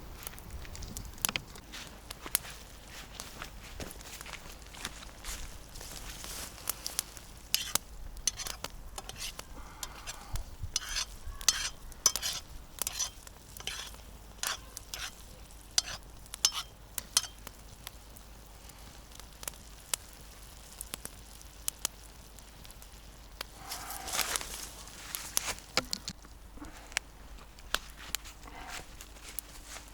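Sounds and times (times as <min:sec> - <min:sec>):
faint sizzle: 0:00.0 - 0:29.9
utensil scraping a pan: 0:07.5 - 0:17.4.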